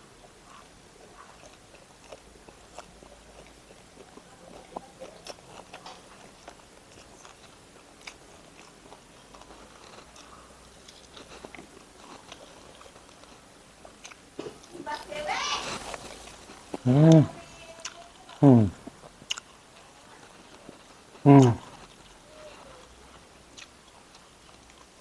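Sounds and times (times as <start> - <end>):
person chewing food: 0.0 - 25.0.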